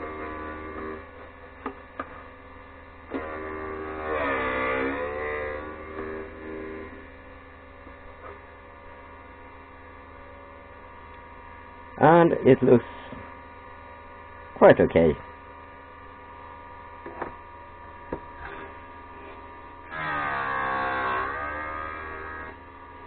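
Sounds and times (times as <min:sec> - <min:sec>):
grinder motor humming: 0:00.0 - 0:01.2, 0:03.1 - 0:09.2, 0:16.7 - 0:23.0
drill bit grinding on wheel: 0:03.2 - 0:07.0, 0:19.9 - 0:22.6.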